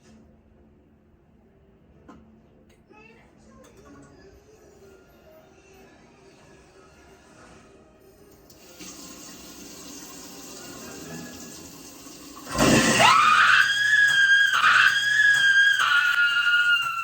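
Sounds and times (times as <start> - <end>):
water running in a sink: 8.3 - 17.0
person screaming: 12.6 - 17.0.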